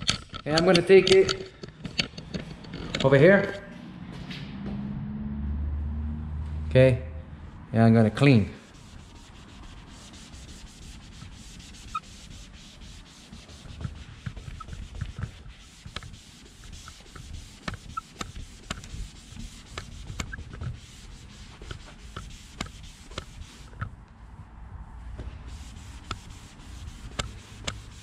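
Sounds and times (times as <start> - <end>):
rag rubbing on plastic trim: 0.0 - 3.5, 8.6 - 24.0, 25.5 - 28.0.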